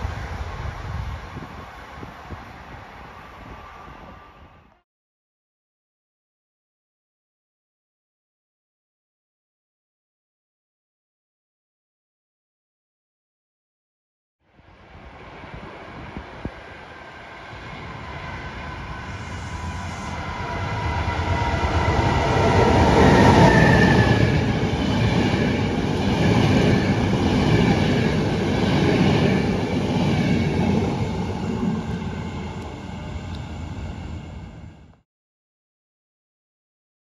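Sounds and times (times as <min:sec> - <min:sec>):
train passing at speed: 0:00.0 - 0:04.8, 0:14.5 - 0:35.0.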